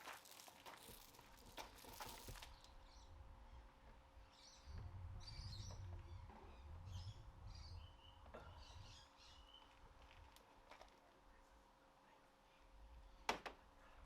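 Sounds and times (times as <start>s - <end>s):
faint birds chirping: 2.5s - 10.3s
low rumble: 4.6s - 9.0s.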